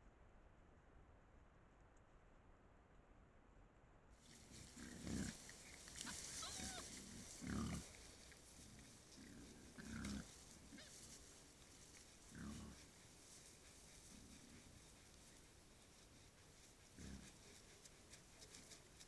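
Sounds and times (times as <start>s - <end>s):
wild boar grunting: 4.3s - 18.8s.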